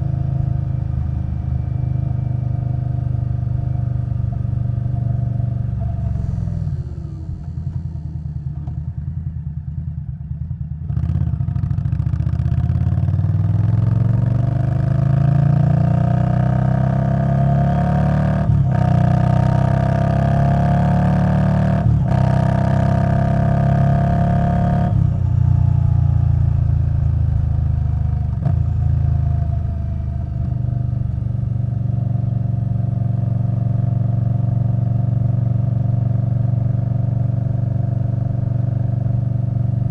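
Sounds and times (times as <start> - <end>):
motorcycle engine revving: 10.9 - 39.9.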